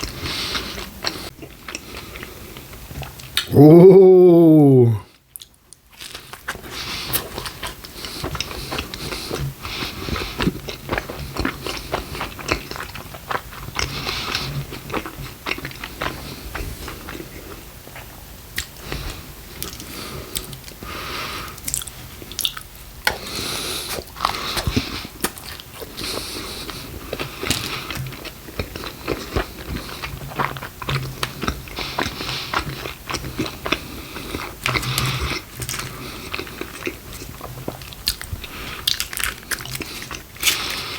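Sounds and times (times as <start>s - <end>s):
chewing with crunchy bites: 0.0s - 3.5s, 5.1s - 40.9s
wet mouth sounds: 3.0s - 5.0s.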